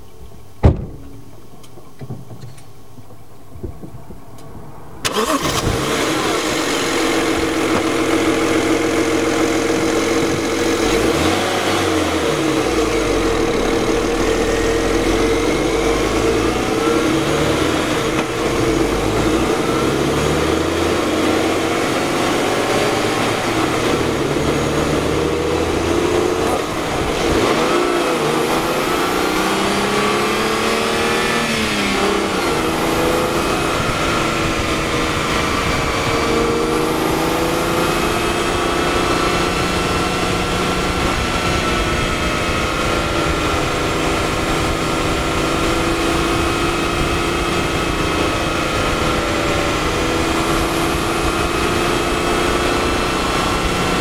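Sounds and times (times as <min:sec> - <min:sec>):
car engine running under load: 0:00.0 - 0:54.0.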